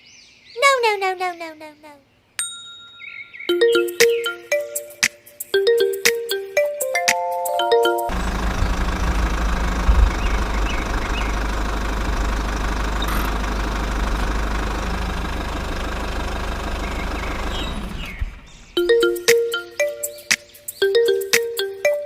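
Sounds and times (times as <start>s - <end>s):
small engine running: 8.1s - 18.6s.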